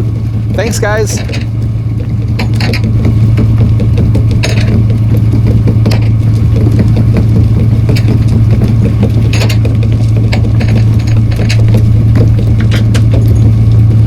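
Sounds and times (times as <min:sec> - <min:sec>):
boat engine drone: 0:00.0 - 0:14.0
fast mechanical ticking: 0:00.0 - 0:14.0
sharp metallic clanks: 0:00.6 - 0:01.6, 0:04.2 - 0:04.9, 0:07.8 - 0:13.7.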